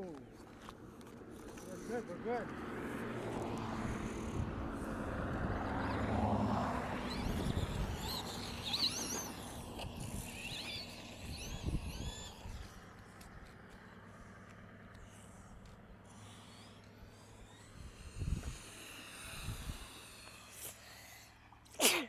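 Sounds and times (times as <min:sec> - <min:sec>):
rc truck motor whirring: 0:00.0 - 0:21.8.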